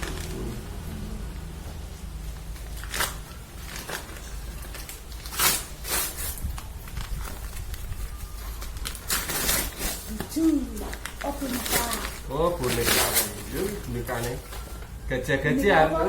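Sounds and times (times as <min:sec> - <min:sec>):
gift wrapping tearing and rustling: 0:00.0 - 0:00.6, 0:02.3 - 0:15.3
steady low hum: 0:00.0 - 0:16.0.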